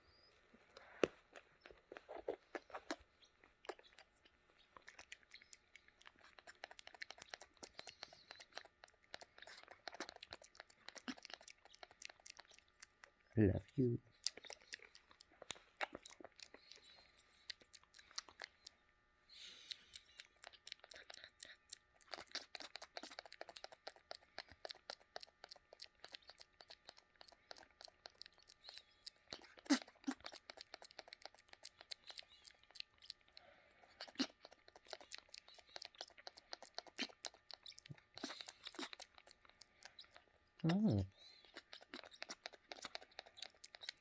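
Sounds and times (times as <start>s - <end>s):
cockatoo beak crunchy clicks: 3.6s - 13.2s, 14.1s - 18.8s, 19.5s - 44.0s.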